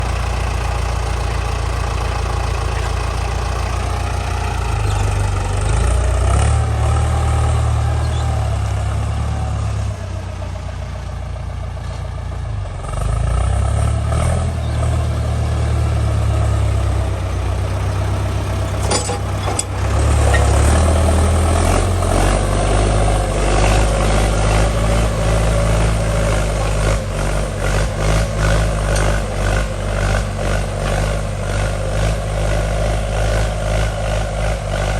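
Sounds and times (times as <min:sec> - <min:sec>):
tractor diesel engine under load: 0:00.0 - 0:34.9.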